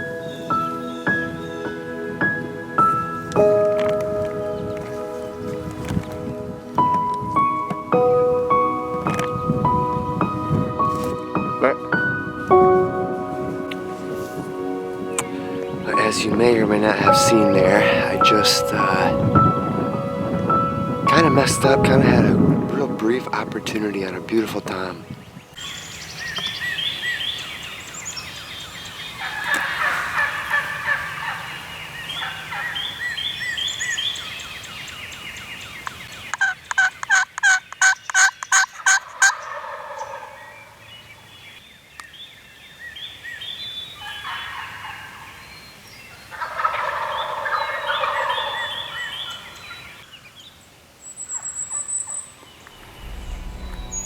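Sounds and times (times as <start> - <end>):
songbird chirp: 0.0 - 54.0
turkeys gobbling: 29.2 - 33.2, 36.2 - 40.8, 44.0 - 45.4, 46.3 - 50.0
short loud notes: 52.8 - 54.0.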